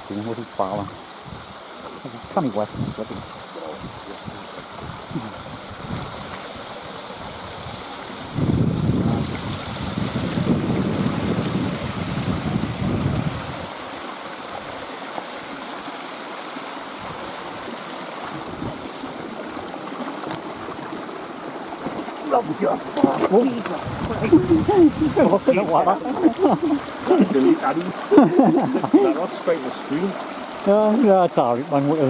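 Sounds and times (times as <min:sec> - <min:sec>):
stream running: 0:00.0 - 0:32.0
wind buffeting microphone: 0:02.6 - 0:06.4, 0:07.2 - 0:13.7, 0:18.3 - 0:19.7, 0:21.8 - 0:29.2.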